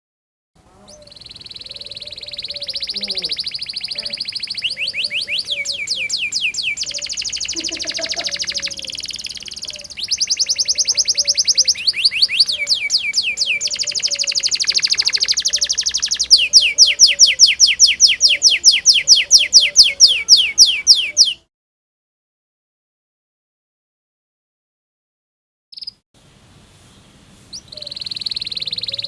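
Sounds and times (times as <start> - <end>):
canary singing trills: 0.6 - 21.5, 25.7 - 26.0, 27.4 - 29.0.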